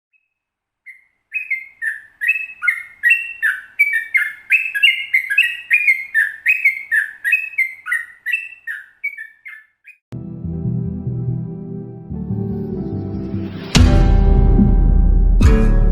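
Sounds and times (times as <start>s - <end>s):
bird singing bubbly whistles: 0.9s - 10.0s
music: 10.1s - 15.9s.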